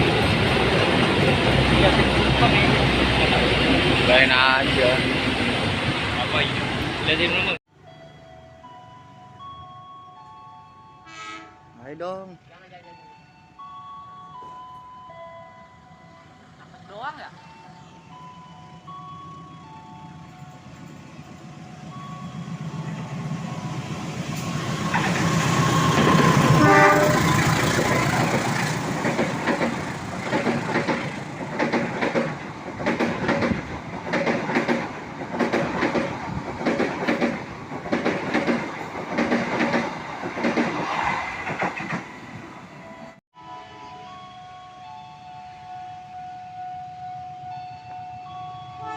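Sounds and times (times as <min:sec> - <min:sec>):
train locomotive passing: 0:00.0 - 0:48.9
wheels clacking over rail joints: 0:18.7 - 0:42.6.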